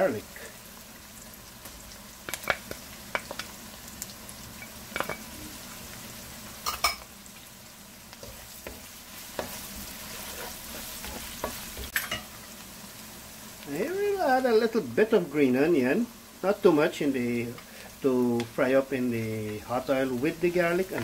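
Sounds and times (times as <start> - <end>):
onion and garlic sizzling in oil: 0.0 - 21.0
chopsticks scraping a pan: 8.2 - 12.3.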